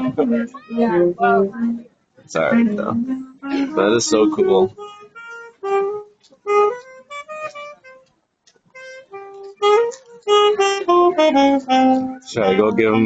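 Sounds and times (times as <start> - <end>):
woodwind melody: 2.5 - 8.1, 8.8 - 13.0.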